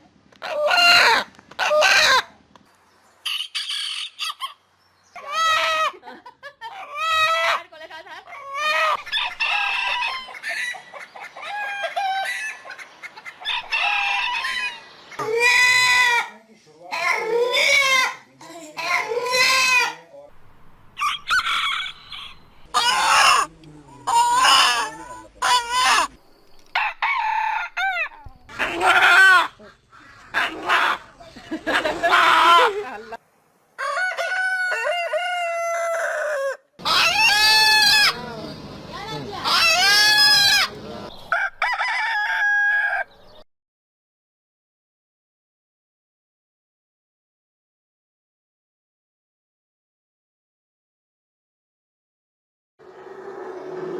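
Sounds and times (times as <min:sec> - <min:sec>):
rooster crowing: 0:08.6 - 0:10.8, 0:13.6 - 0:16.3, 0:21.0 - 0:23.5, 0:26.7 - 0:29.5, 0:33.8 - 0:38.3, 0:39.4 - 0:43.3.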